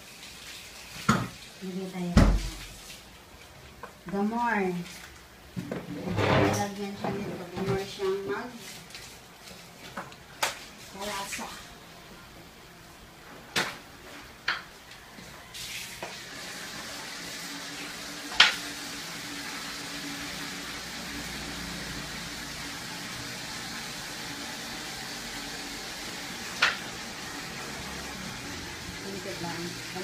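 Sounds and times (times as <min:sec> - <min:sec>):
meat sizzling in a pot: 0:00.0 - 0:02.8, 0:15.2 - 0:30.0.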